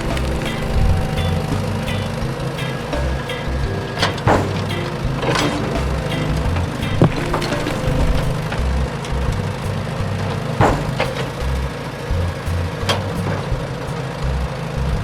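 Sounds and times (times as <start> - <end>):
background music: 0.0 - 14.4
sharp knocks: 6.9 - 8.4, 10.6 - 11.3.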